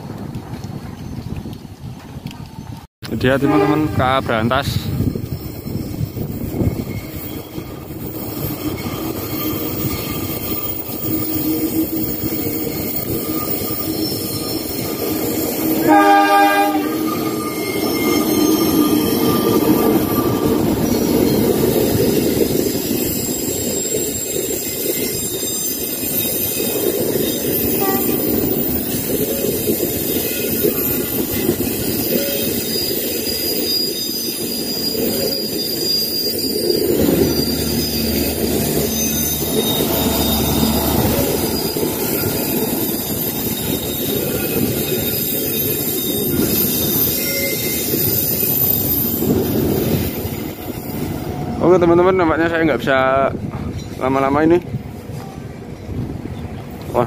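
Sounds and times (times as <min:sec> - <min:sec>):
passenger train rumbling past: 0:00.0 - 0:57.0
locomotive horn: 0:03.3 - 0:04.2, 0:15.8 - 0:17.2, 0:27.8 - 0:28.3, 0:37.0 - 0:42.8.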